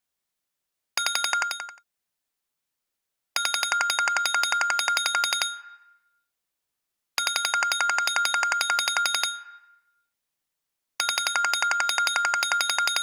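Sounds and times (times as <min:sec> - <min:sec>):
phone ringtone bell trill: 0:01.0 - 0:01.8, 0:03.4 - 0:06.0, 0:07.2 - 0:09.8, 0:11.0 - 0:13.0.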